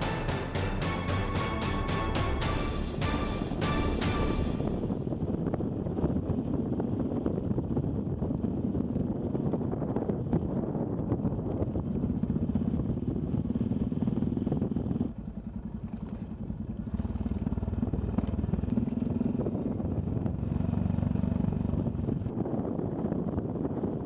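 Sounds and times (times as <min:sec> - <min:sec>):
motorcycle engine running: 0:12.0 - 0:22.3.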